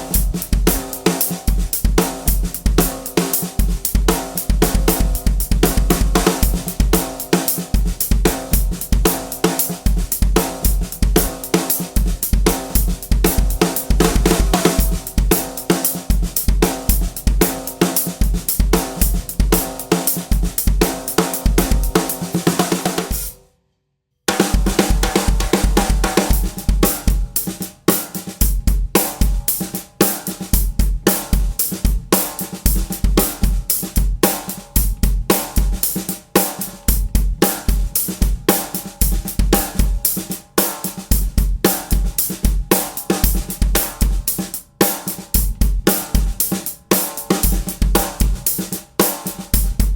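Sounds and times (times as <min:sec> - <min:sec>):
bass drum: 0:00.0 - 0:23.4, 0:24.4 - 0:27.6, 0:47.4 - 0:49.9
snare drum: 0:00.0 - 0:23.4, 0:24.3 - 0:49.9.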